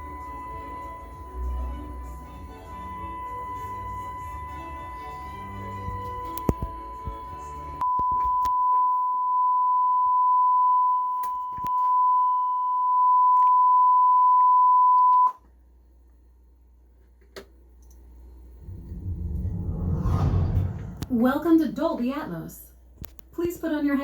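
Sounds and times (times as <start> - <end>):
faint low hum: 14.0 - 22.0.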